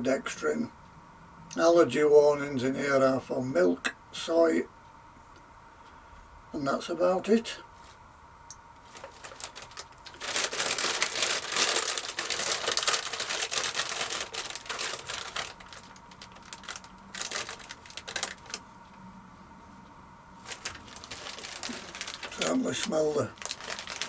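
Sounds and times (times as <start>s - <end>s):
plastic crisp packet crinkling: 8.8s - 18.6s, 20.4s - 24.0s.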